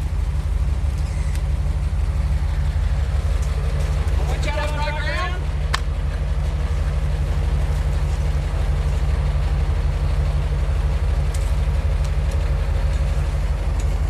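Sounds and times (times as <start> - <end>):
truck engine running at low revs: 0.0 - 14.0.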